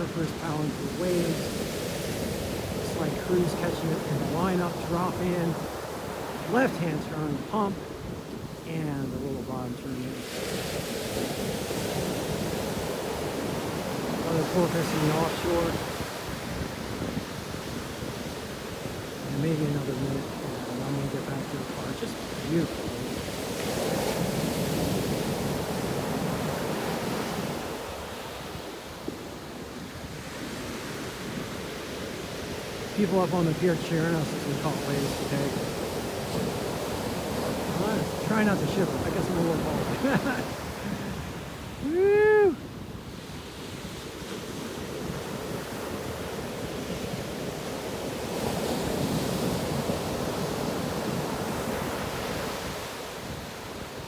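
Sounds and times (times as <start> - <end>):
ocean surf breaking: 0.0 - 54.0
wind buffeting microphone: 10.4 - 27.8, 34.9 - 47.7
man cheering: 41.8 - 42.6.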